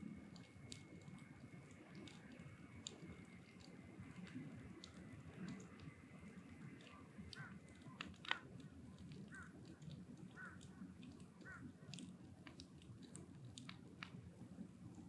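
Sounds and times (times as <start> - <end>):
wood fire crackling: 0.0 - 15.0
crow cawing: 7.4 - 7.6, 9.3 - 9.6, 10.4 - 10.6, 11.4 - 11.6.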